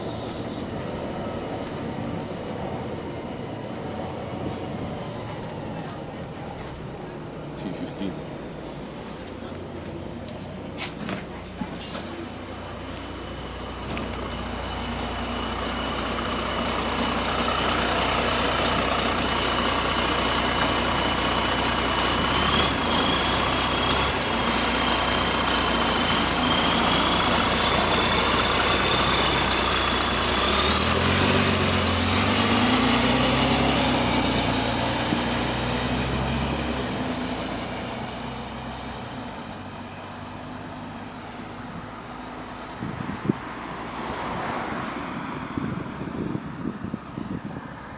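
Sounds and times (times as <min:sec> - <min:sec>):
bus diesel engine: 0:00.0 - 0:47.9.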